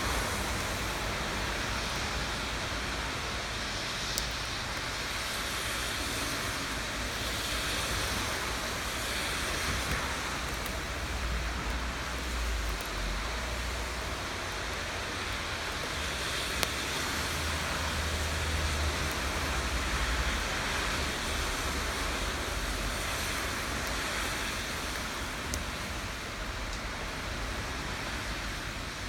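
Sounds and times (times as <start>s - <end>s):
rain hiss: 0.0s - 29.0s
sharp drip ticks: 3.9s - 5.5s, 9.2s - 26.0s.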